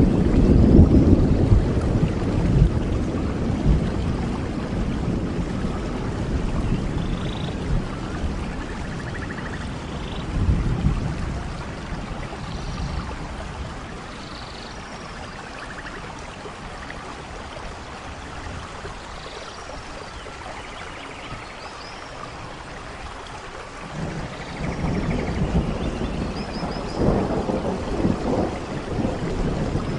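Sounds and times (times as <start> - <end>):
low thunder rumble: 0.0 - 14.2, 23.8 - 29.9
steady rainfall: 0.0 - 29.9.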